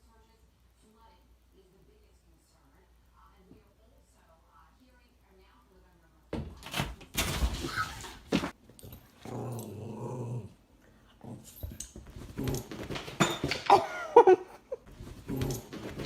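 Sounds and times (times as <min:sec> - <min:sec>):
animal growling low: 0:09.2 - 0:10.6.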